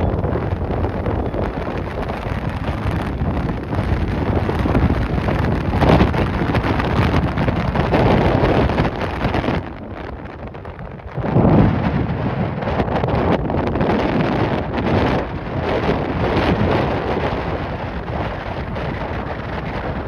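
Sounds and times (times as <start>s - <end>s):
gusty wind buffeting microphone: 0.0s - 20.0s.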